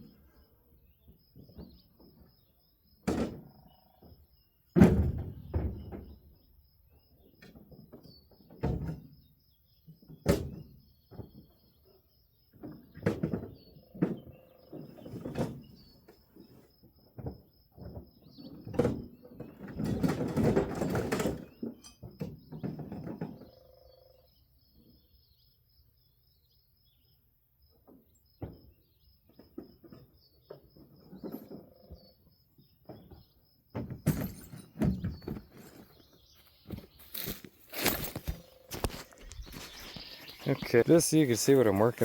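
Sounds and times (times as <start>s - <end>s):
insect chirping: 13.6s - 15.0s, 23.2s - 42.0s
knocks scrapes and clatter: 18.8s - 23.2s, 33.8s - 42.0s.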